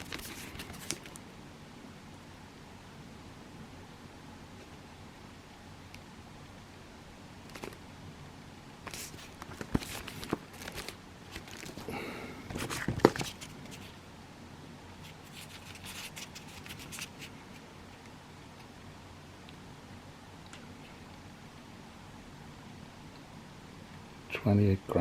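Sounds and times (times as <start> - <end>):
cardboard packaging rustling: 0.0 - 1.2, 8.9 - 14.0, 15.0 - 17.3.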